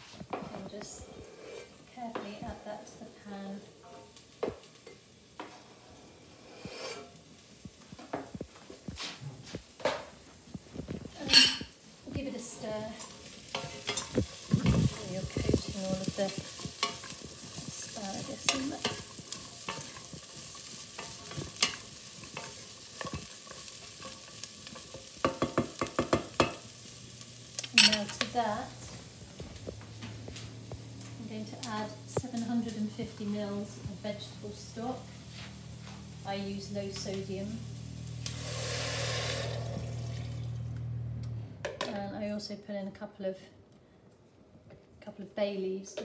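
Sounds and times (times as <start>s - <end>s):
food sizzling in pan: 1.0s - 41.0s
vegetables clattering into pan: 12.9s - 26.9s
spoon tapping against pan: 25.2s - 26.6s.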